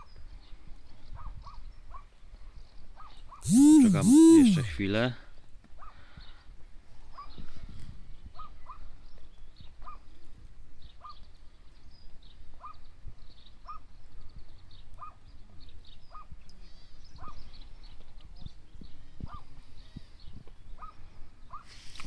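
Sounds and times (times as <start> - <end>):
bird short call: 3.4 - 4.8.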